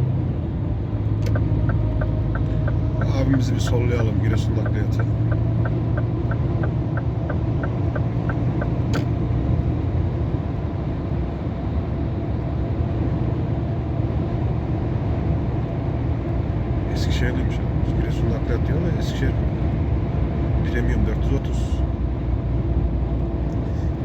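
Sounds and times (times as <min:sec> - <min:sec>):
diesel truck engine running: 0:00.0 - 0:24.0
road noise: 0:00.0 - 0:24.0
turn signal ticking: 0:01.0 - 0:09.2.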